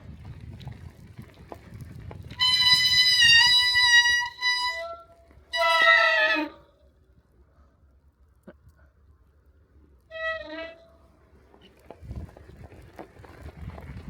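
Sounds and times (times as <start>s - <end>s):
tyre and wind rumble: 0.0s - 5.0s, 11.1s - 14.0s
bicycle brakes squealing: 2.3s - 6.6s.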